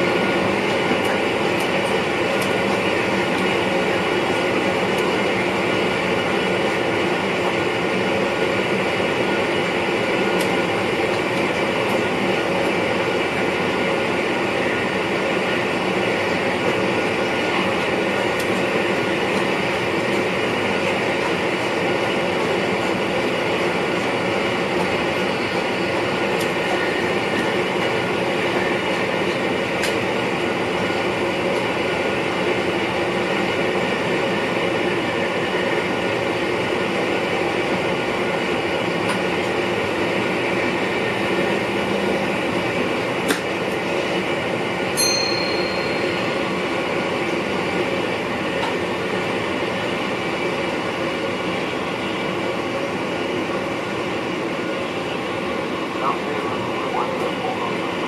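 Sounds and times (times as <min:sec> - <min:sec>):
train rolling rumble: 0:00.0 - 0:58.0
short high tone: 0:45.0 - 0:46.7.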